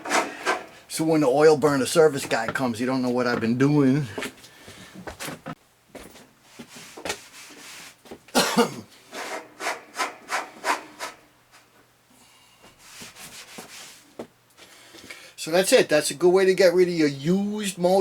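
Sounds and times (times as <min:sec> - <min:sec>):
rubbing and scraping strokes: 0:00.0 - 0:00.9, 0:06.5 - 0:08.0, 0:09.1 - 0:11.8, 0:12.8 - 0:14.2
faint steady hum: 0:00.0 - 0:18.0.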